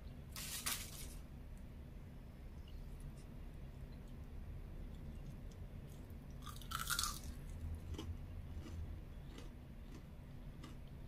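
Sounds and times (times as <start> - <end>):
chewing crispy fried chicken: 4.8 - 11.0.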